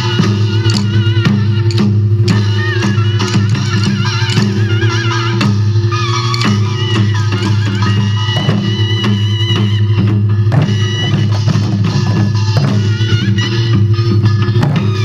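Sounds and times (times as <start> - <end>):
wavering melody: 0.2 - 9.4
barrel drum strikes: 0.7 - 1.1, 3.2 - 4.8, 6.3 - 9.4, 10.5 - 13.2.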